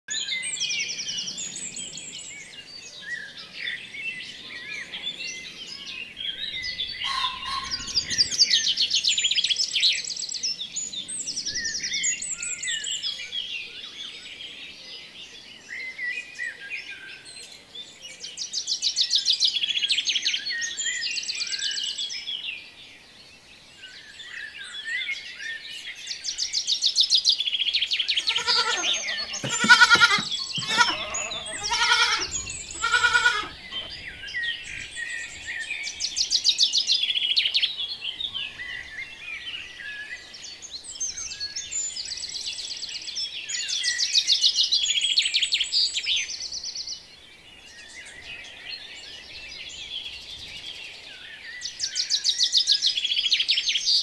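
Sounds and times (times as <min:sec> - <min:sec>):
small birds chirping and trilling: 0:00.1 - 0:54.0
bleat: 0:28.2 - 0:33.9.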